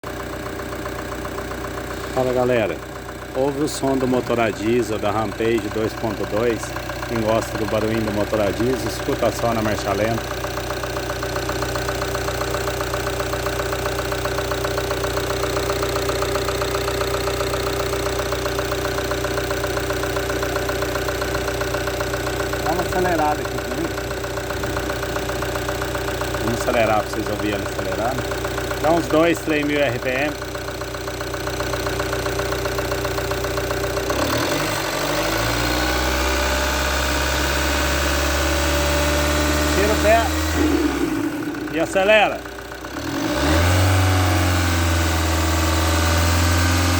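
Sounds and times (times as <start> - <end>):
diesel engine idling: 0.0 - 46.9.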